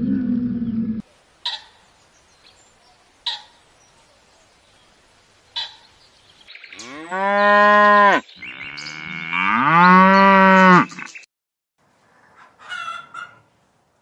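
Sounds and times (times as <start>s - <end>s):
cow mooing: 6.8s - 11.0s.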